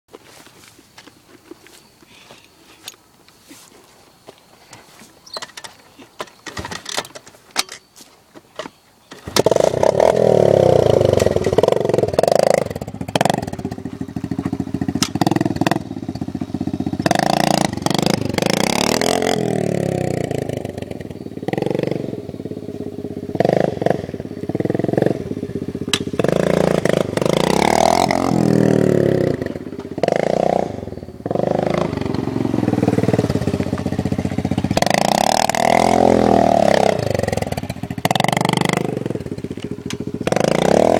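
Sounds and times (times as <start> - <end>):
dirt bike engine revving: 9.2 - 40.9.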